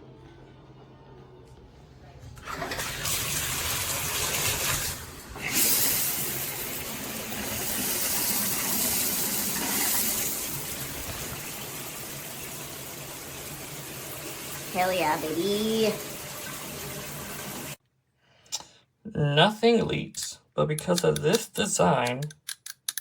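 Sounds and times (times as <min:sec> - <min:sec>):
shower water spraying: 0:02.5 - 0:17.8.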